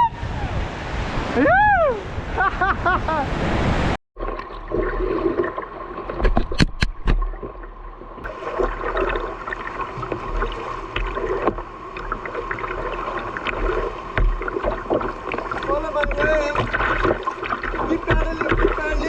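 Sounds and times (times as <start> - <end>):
whitewater rushing and splashing: 0.0 - 4.0, 8.2 - 19.0.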